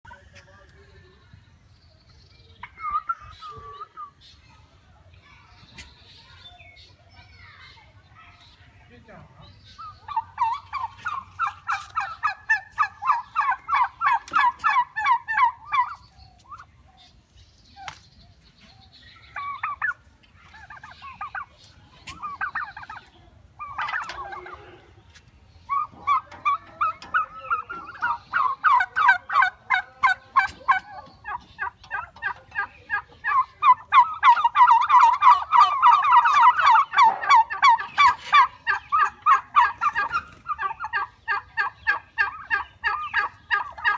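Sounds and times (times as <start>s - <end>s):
turkeys gobbling: 2.6s - 4.2s, 9.7s - 16.8s, 19.2s - 43.9s.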